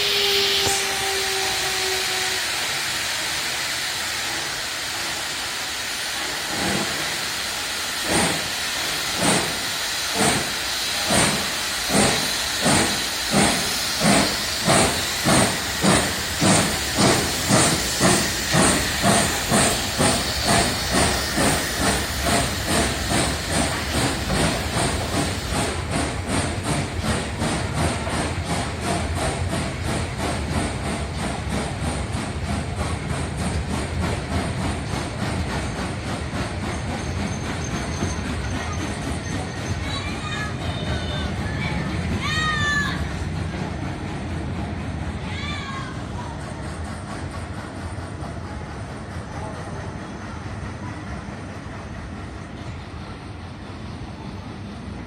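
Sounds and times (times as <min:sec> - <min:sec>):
steam locomotive whistle: 0:00.0 - 0:03.1
locomotive exhaust chuffs: 0:00.0 - 0:40.4
steam hissing: 0:00.0 - 0:55.0.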